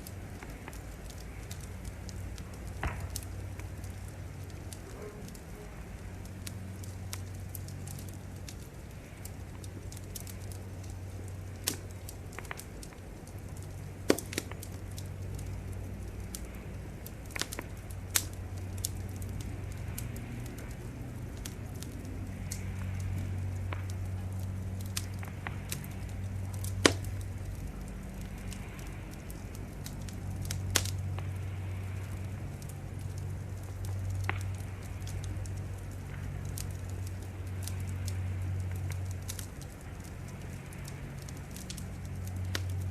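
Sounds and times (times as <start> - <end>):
low steady rumble: 0.0 - 42.9
wood fire crackling: 0.0 - 42.9.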